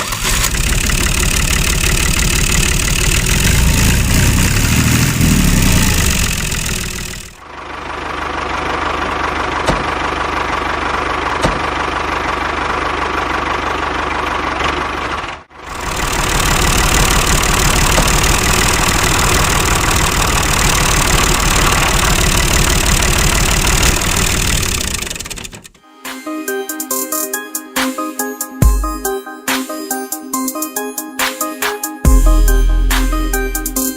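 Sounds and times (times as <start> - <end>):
small engine running: 0.0 - 25.7.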